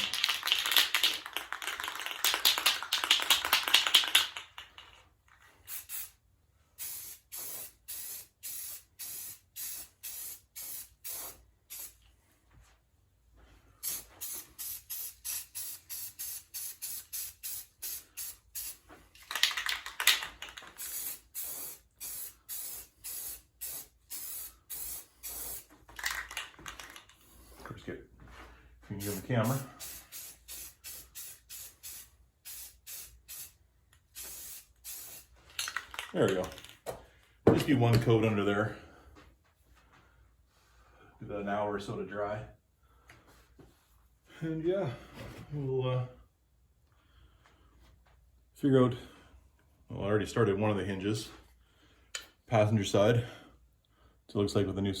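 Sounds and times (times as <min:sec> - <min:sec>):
aerosol spray can hissing: 0:05.7 - 0:06.2, 0:06.8 - 0:12.0, 0:13.8 - 0:18.8, 0:20.8 - 0:25.7, 0:29.0 - 0:35.3.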